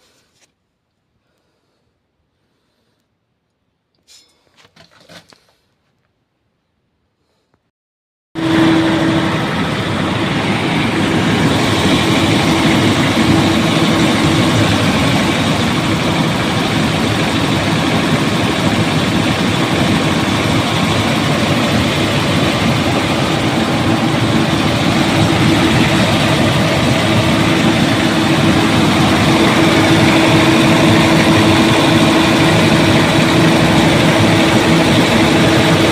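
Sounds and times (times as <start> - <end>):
heavy diesel engine running: 8.4 - 35.9
steady whine: 8.4 - 35.9.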